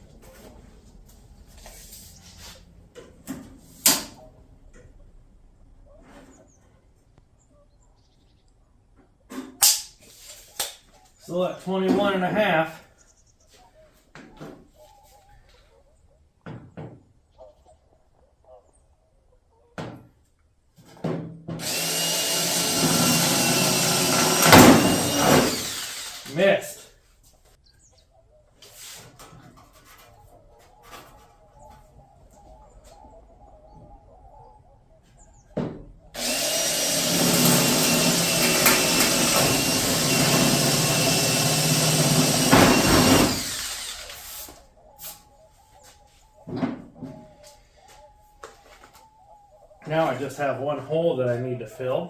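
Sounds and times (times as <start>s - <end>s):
short scraping sounds: 9.3s - 10.6s, 28.6s - 30.2s
power drill drilling sheet metal: 21.6s - 26.6s, 36.2s - 44.6s.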